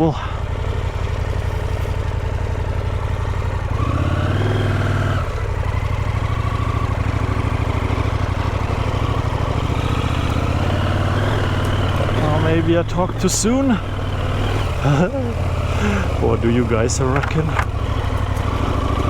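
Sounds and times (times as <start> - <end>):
motorcycle engine revving: 0.4 - 19.0.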